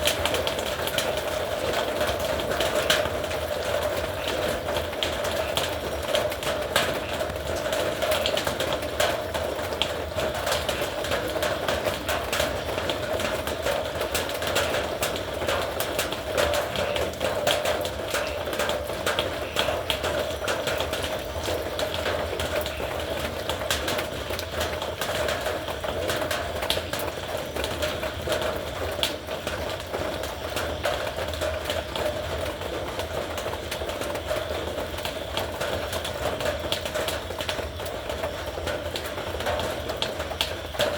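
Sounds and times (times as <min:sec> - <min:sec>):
heavy rain on a metal roof: 0:00.0 - 0:40.9.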